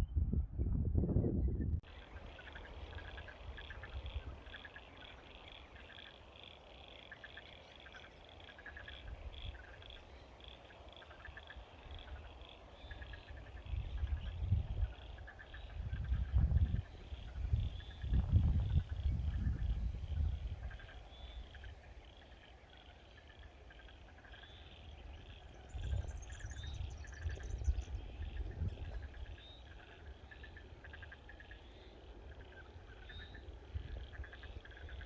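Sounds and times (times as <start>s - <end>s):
wind buffeting microphone: 0.0s - 1.8s, 13.4s - 21.6s, 25.0s - 29.4s.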